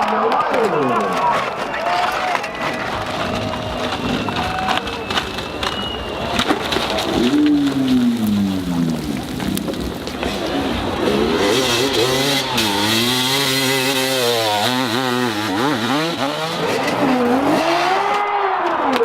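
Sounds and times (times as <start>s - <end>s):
dirt bike engine revving: 7.1s - 18.9s.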